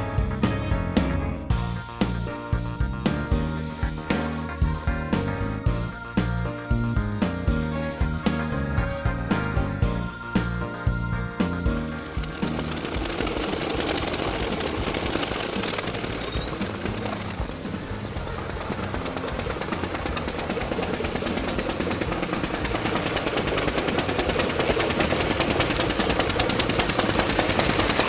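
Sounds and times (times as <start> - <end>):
small engine exhaust pops: 11.7 - 28.0.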